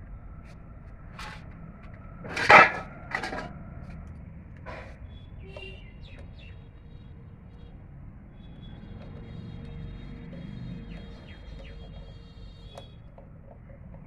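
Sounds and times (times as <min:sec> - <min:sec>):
metal tools clanking and scraping: 0:02.2 - 0:03.7, 0:04.6 - 0:05.0.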